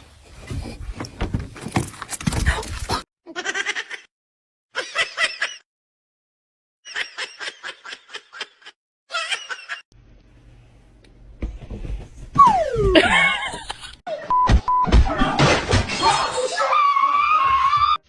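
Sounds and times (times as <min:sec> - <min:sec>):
person laughing: 0:12.5 - 0:14.0.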